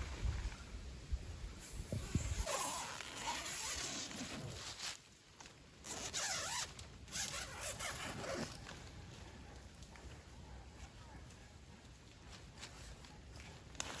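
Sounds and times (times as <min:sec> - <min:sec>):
zipper rasping: 0:02.0 - 0:05.0, 0:05.8 - 0:08.6.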